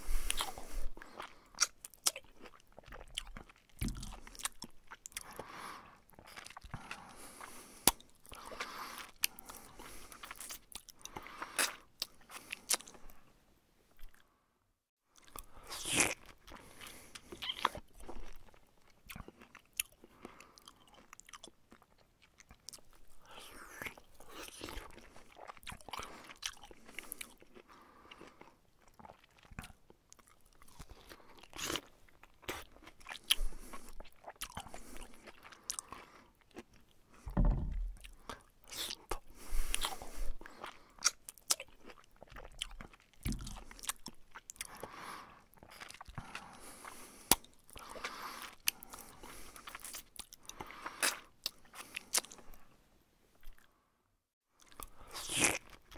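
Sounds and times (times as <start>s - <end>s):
man chewing food: 0.0s - 13.3s, 13.9s - 14.4s, 15.1s - 52.8s, 53.4s - 53.8s, 54.6s - 55.9s
dull deep thumps: 37.3s - 38.1s.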